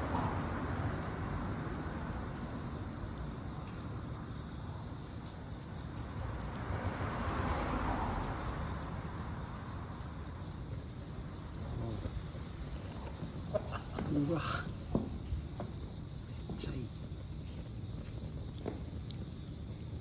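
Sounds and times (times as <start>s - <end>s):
campfire flames rushing: 0.0s - 20.0s.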